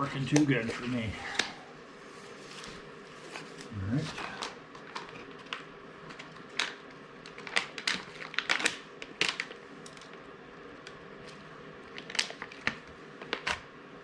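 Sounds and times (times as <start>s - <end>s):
packaging crinkling and clicking: 2.6s - 13.7s.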